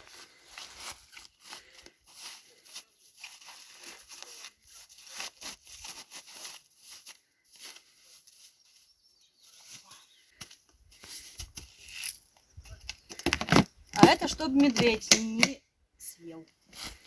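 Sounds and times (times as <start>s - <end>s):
packaging rustling and crinkling: 0.0s - 8.5s, 10.9s - 15.0s.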